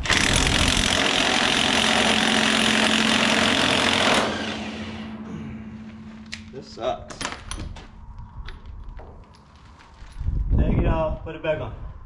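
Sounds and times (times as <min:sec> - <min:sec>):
low hum: 0:01.8 - 0:10.6.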